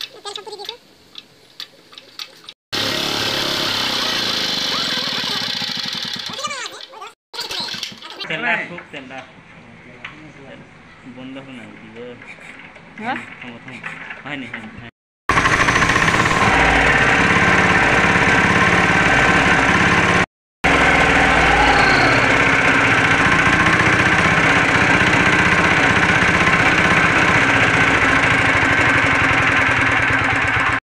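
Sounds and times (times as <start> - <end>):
diesel engine chugging: 2.8 - 6.4, 15.3 - 30.8.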